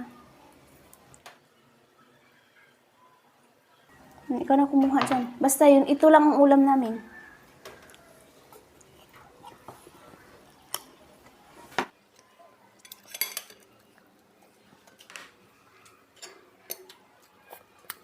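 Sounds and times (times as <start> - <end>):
cutlery clinking on plates: 12.8 - 13.8, 14.8 - 17.1.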